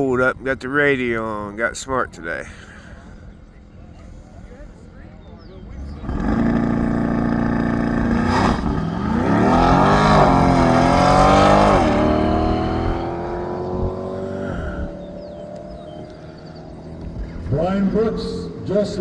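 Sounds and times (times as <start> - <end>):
race car accelerating: 5.4 - 19.0.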